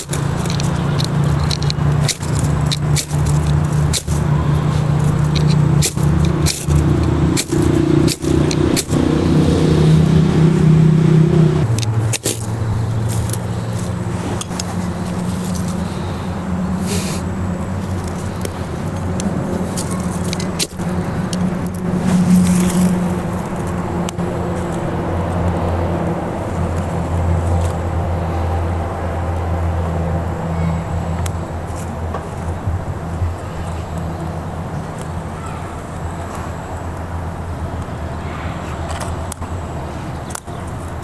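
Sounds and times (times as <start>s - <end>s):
sharp clicks and knocks: 0.0s - 9.9s, 11.6s - 15.8s
low motor drone: 0.0s - 34.8s.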